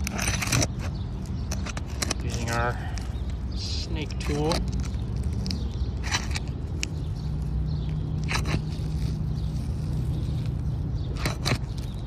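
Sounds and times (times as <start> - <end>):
tool scraping shingles: 0.0 - 2.8, 4.0 - 6.8, 8.1 - 12.0.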